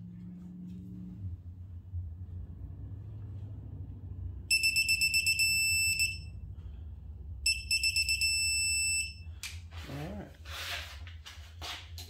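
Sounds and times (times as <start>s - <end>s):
torque wrench beeping: 4.5s - 6.3s, 7.5s - 9.2s.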